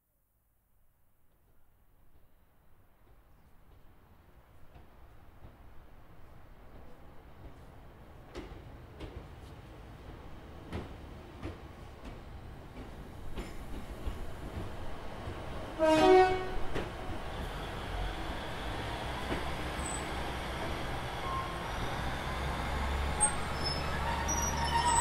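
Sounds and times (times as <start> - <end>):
train horn: 15.8 - 16.7
high wheel squeals: 21.2 - 25.0.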